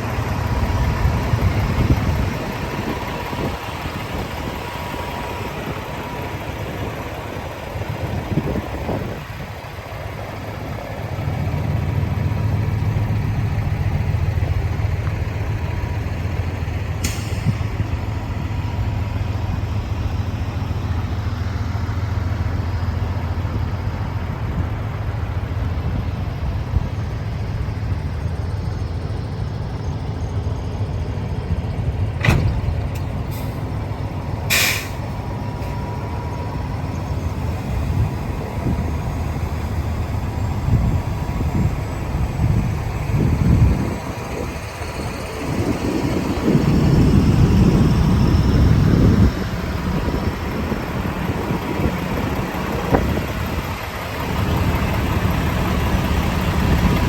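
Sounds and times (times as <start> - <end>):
diesel truck engine idling: 0.0 - 57.0
compressed air hisses: 34.5 - 35.1.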